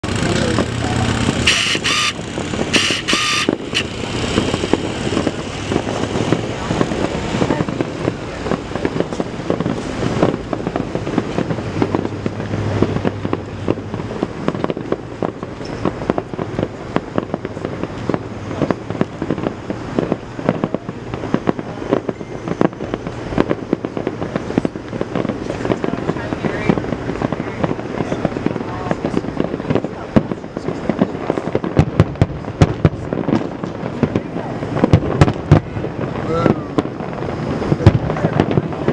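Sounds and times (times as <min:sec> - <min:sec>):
fireworks bangs and crackles: 0:00.0 - 0:38.9.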